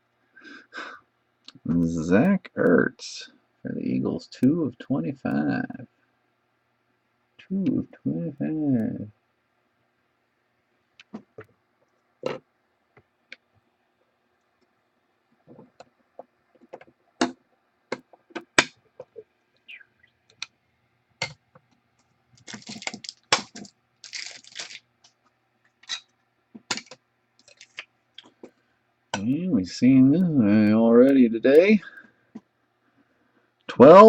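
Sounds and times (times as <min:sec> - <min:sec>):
cards rustling and sliding: 0:22.4 - 0:25.2.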